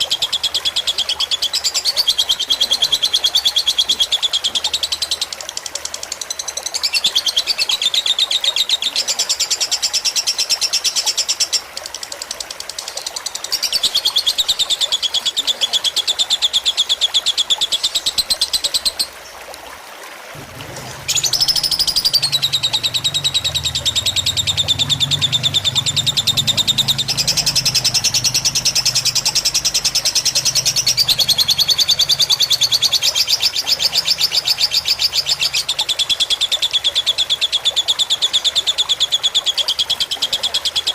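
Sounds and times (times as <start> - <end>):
trickling water: 0.0 - 40.9
lovebird chattering trill: 20.7 - 37.3.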